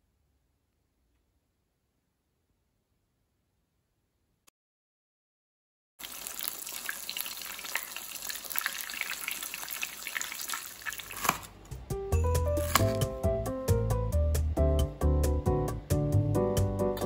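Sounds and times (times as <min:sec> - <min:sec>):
chicken sizzling in hot oil: 0:06.0 - 0:11.4.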